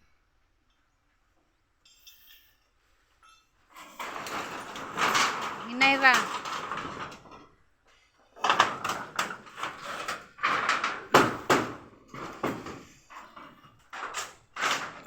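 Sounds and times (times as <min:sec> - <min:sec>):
hand tool scraping wood: 0:09.2 - 0:11.2.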